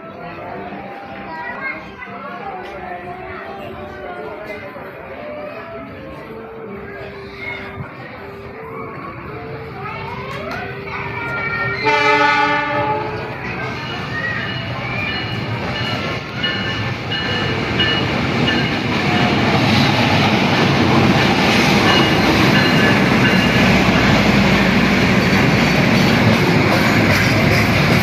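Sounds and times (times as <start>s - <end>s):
train wheels rumbling on rail: 10.0s - 28.0s.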